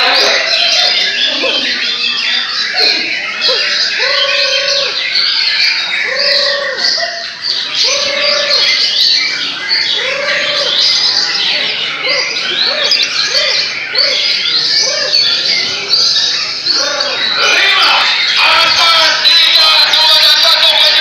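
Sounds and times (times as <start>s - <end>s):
songbirds singing in chorus: 0.0s - 21.0s
low cooing notes: 2.7s - 5.0s, 5.9s - 18.1s.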